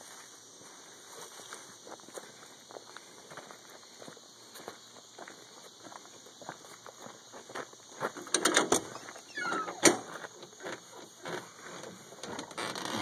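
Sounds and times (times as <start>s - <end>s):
loud clicks and knocks: 8.3s - 8.9s.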